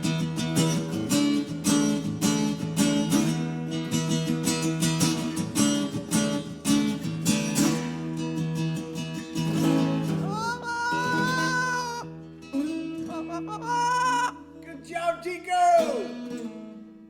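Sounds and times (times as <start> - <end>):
acoustic guitar strumming: 0.0 - 17.0
high voice singing held note: 10.2 - 14.8.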